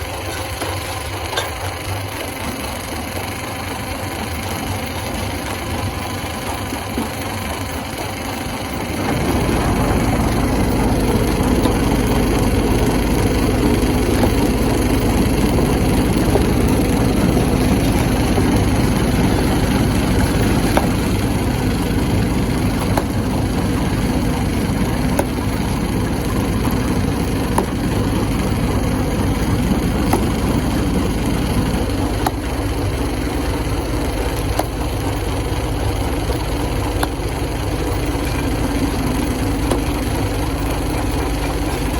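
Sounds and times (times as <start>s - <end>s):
rock crusher droning: 0.0s - 41.9s
sharp knocks: 22.8s - 23.4s, 29.0s - 32.5s.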